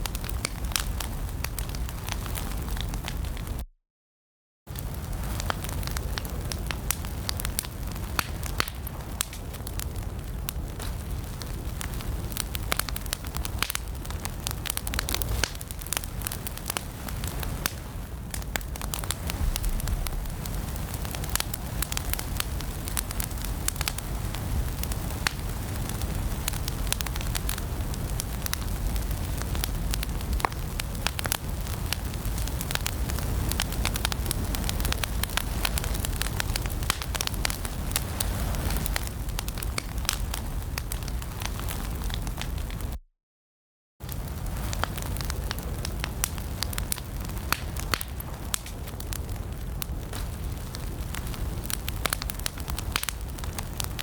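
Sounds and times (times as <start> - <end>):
low rumble of flames: 0.0 - 3.6, 4.7 - 43.0, 44.0 - 54.0
wood fire crackling: 0.0 - 3.6, 4.7 - 43.0, 44.0 - 54.0.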